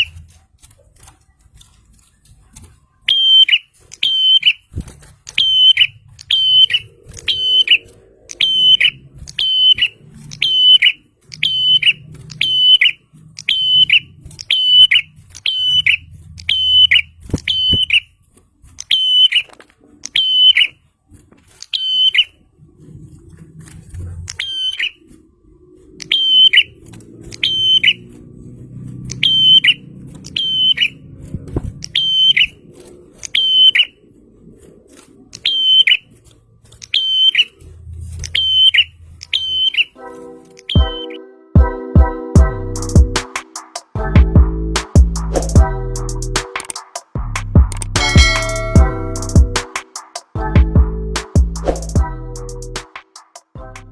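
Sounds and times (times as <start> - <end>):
bird chirping: 3.0 - 20.9, 21.6 - 23.2, 24.3 - 31.2, 31.8 - 34.3, 35.3 - 36.2, 36.8 - 40.0, 40.6 - 41.3.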